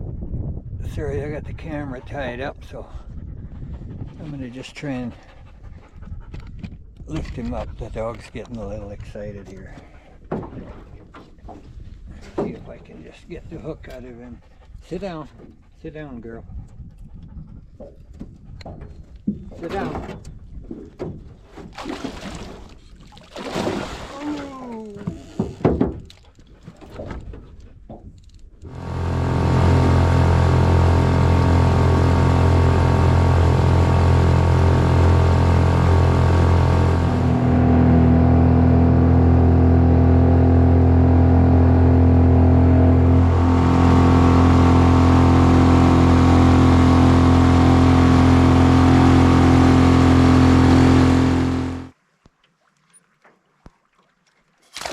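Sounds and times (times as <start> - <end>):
outboard motor running: 17.1 - 27.0, 28.6 - 52.0
short whine: 28.7 - 51.9.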